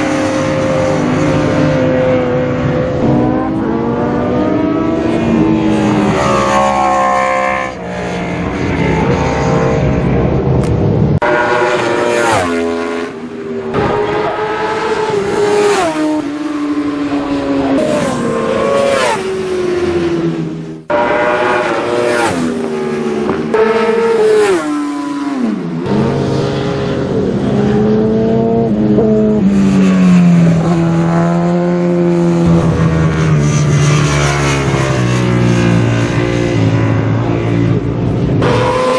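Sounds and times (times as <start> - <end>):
racing motorcycles revving: 0.0 - 38.9
motorcycles passing by: 11.5 - 14.0, 14.9 - 38.9.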